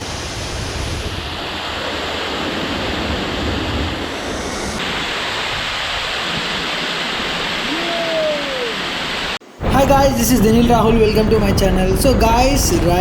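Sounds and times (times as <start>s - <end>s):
wind rumble on microphone: 0.0s - 6.8s
waterfall rushing: 0.0s - 13.0s.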